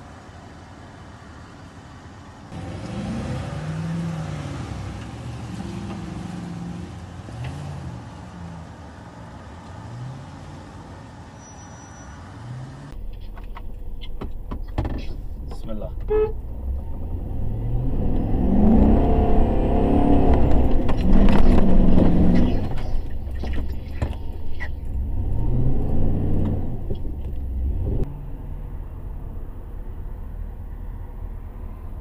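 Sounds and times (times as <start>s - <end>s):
engine revving: 2.5s - 8.6s, 16.5s - 32.0s
knocks and clatters: 13.0s - 16.1s, 20.3s - 24.9s.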